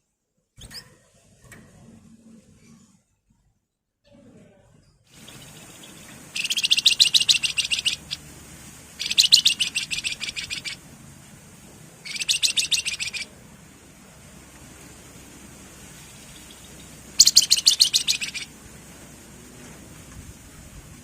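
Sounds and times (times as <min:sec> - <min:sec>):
bird rattling trilled song: 0:05.1 - 0:08.3, 0:09.0 - 0:10.8, 0:12.0 - 0:13.3, 0:16.0 - 0:18.5.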